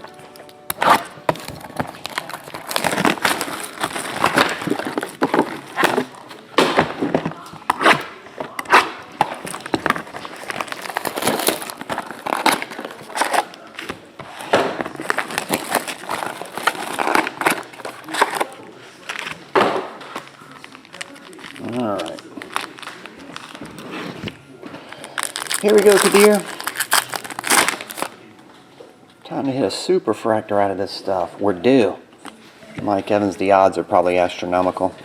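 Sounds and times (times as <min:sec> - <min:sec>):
plastic wrap crinkling and tearing: 0:00.7 - 0:06.5, 0:07.4 - 0:19.5, 0:20.1 - 0:28.2
cardboard rustling: 0:00.8 - 0:28.2.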